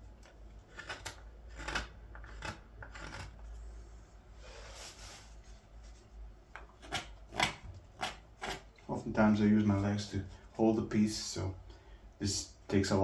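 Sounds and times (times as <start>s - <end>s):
knife carving green wood: 0.0s - 4.0s, 6.6s - 9.1s.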